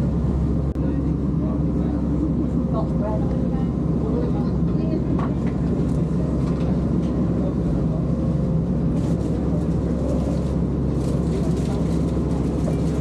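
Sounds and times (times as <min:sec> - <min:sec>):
boat engine low drone: 0:00.0 - 0:13.0.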